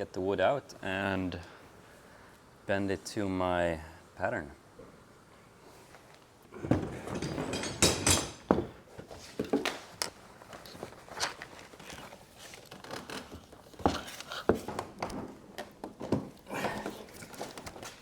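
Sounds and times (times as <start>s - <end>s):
wooden frame knocks and thumps: 6.6s - 8.8s
plastic sheeting rustling: 9.7s - 14.5s.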